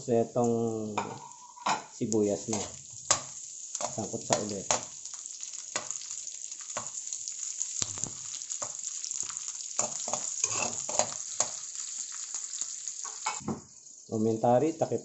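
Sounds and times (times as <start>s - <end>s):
meat and onion sizzling in oil: 0.7s - 15.0s
metal ladle scraping a wok: 9.8s - 11.2s.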